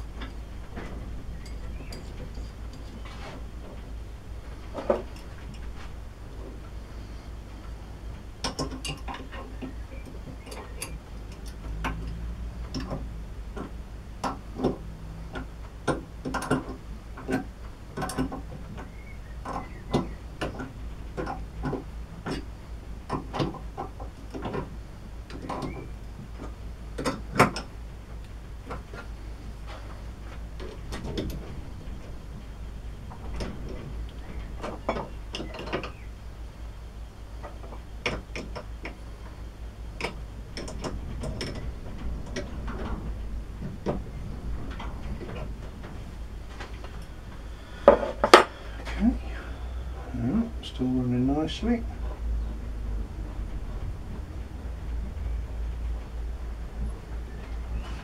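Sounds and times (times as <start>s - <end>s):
low steady hum: 0.0s - 58.0s
metallic clicks and knocks: 8.4s - 29.1s, 33.1s - 36.0s, 37.4s - 39.0s, 40.0s - 47.1s.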